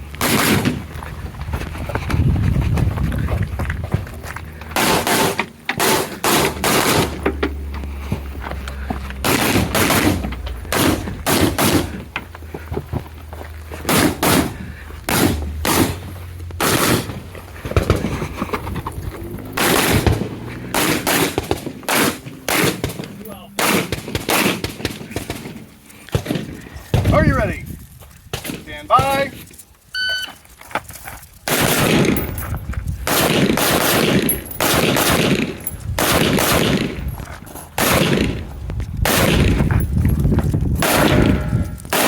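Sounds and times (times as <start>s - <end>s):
rifle shots: 0.2s - 0.8s, 4.8s - 7.2s, 9.2s - 12.1s, 13.9s - 17.2s, 19.6s - 26.5s, 31.4s - 32.4s, 33.0s - 37.1s, 37.8s - 39.8s, 40.8s - 42.0s.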